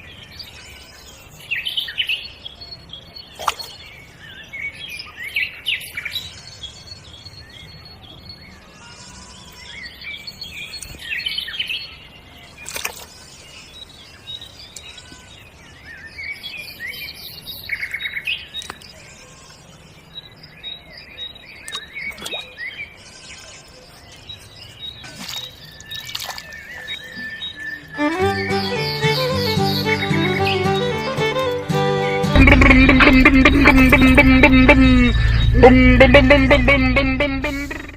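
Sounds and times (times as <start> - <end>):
small birds chirping: 0.0 - 32.6.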